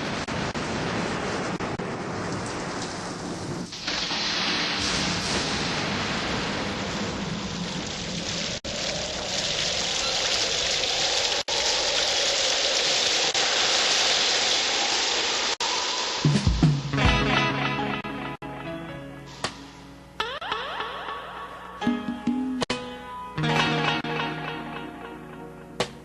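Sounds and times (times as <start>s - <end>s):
heavy rain falling: 0.0s - 17.2s
plucked guitar: 16.9s - 19.4s, 20.2s - 26.0s.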